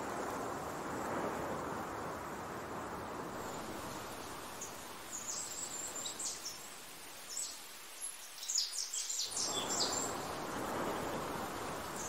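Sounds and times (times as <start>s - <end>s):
wind hiss: 0.0s - 12.0s
small birds chirping: 3.4s - 12.0s.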